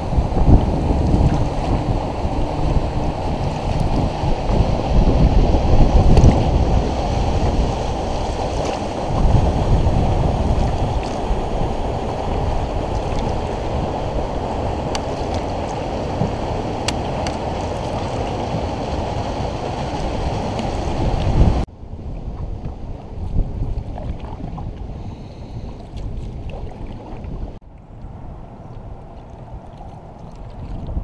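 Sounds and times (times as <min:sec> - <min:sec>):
river water rushing: 0:00.0 - 0:21.6
wind buffeting microphone: 0:00.0 - 0:31.0.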